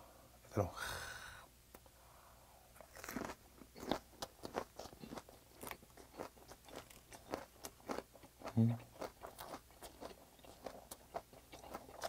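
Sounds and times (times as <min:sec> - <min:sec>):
crisp chewing crunches: 0:02.8 - 0:12.0.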